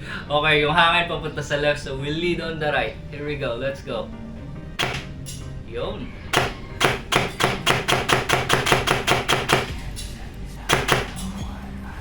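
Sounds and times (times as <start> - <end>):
airsoft rifle firing shots: 4.8 - 5.1, 6.4 - 9.9, 10.7 - 11.2.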